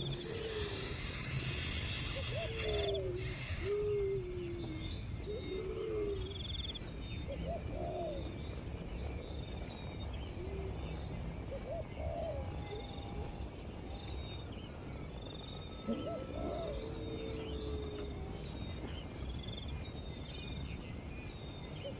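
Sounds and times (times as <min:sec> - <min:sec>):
faint high bird trills: 0:00.0 - 0:06.7
bird low hooting calls: 0:00.0 - 0:08.4, 0:15.8 - 0:18.6.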